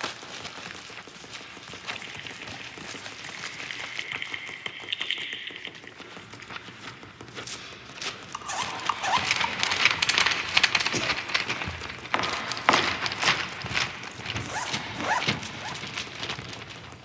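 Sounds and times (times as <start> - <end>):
dense clicking and tapping: 1.8 - 17.0.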